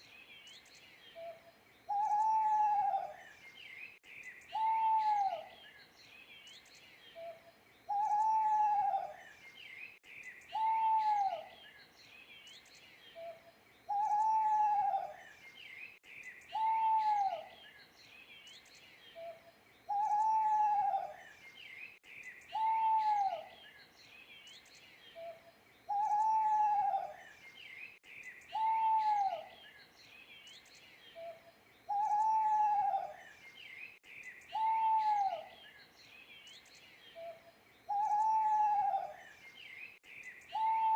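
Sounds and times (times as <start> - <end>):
small birds chirping: 0.0 - 40.9
owl hooting: 1.9 - 3.2, 4.5 - 5.5, 7.9 - 9.2, 10.5 - 11.5, 13.2 - 15.2, 16.5 - 17.5, 19.2 - 21.2, 22.5 - 23.5, 25.2 - 27.2, 28.5 - 29.5, 31.2 - 33.2, 34.5 - 35.6, 37.2 - 39.2, 40.5 - 40.9.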